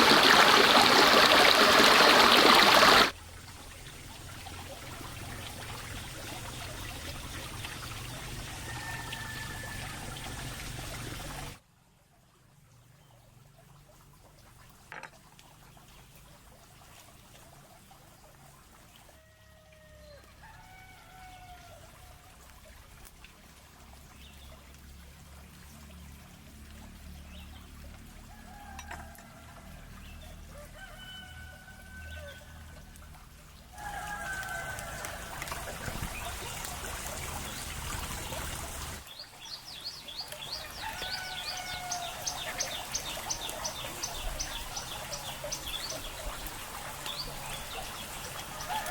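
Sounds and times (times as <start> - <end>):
running water: 0.0 - 11.6, 13.4 - 48.9
roosters crowing: 8.6 - 10.2, 33.8 - 35.4, 40.5 - 42.9, 48.5 - 48.9.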